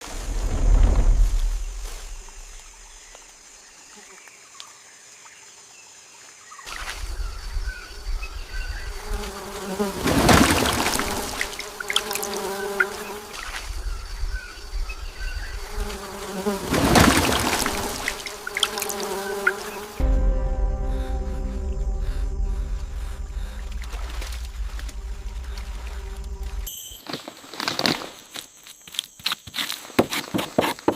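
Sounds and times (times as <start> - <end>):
low rumble: 0.0 - 3.2, 20.0 - 26.7
insect buzzing: 6.7 - 26.7.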